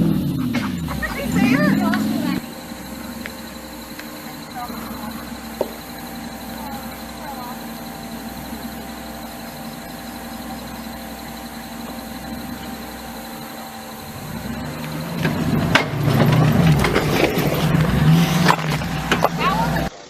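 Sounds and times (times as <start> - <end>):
sharp engine knocks: 0.0 - 7.4, 14.3 - 19.9
vehicle engine idling: 0.0 - 20.0.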